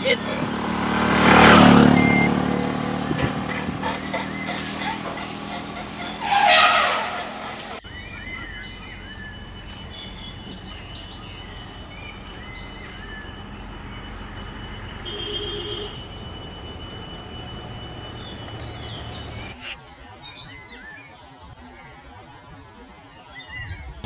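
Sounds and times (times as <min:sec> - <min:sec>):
birds chirping: 0:00.0 - 0:22.0
steady outdoor hiss: 0:00.0 - 0:24.0.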